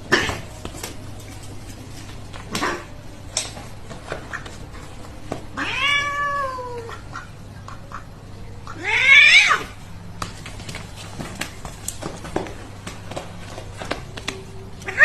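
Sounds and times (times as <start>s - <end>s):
cat meowing: 5.6s - 7.0s, 8.8s - 9.8s.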